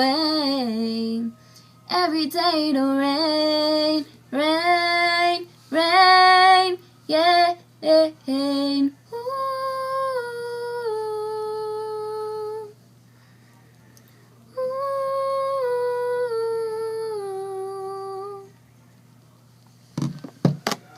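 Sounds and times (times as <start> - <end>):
woman humming: 14.6 - 18.5.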